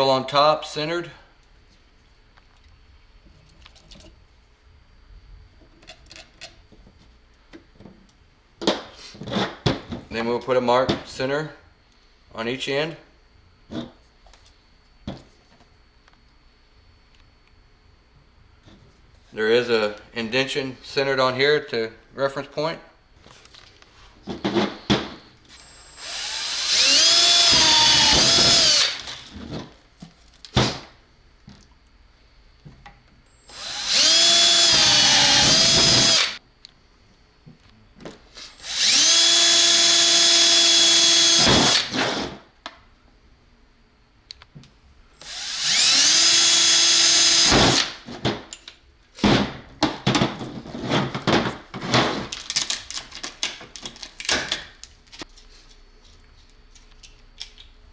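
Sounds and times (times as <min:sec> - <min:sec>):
electric drill whining: 0:25.5 - 0:29.3, 0:33.3 - 0:36.4, 0:38.4 - 0:42.3, 0:45.2 - 0:48.0.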